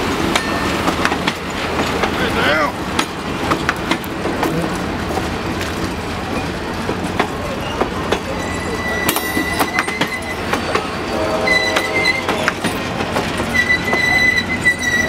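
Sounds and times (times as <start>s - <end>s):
train wheels clicking over rail joints: 0.0s - 15.0s
high metallic wheel squeal: 7.6s - 15.0s.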